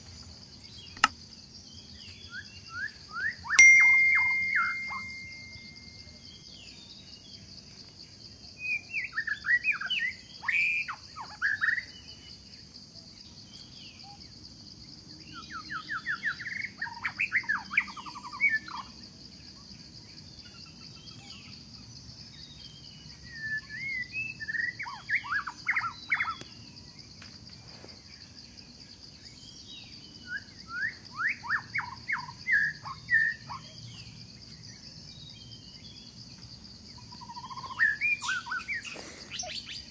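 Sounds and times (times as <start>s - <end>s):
songbird singing: 0.0s - 39.9s
high-pitched insect drone: 3.6s - 6.5s.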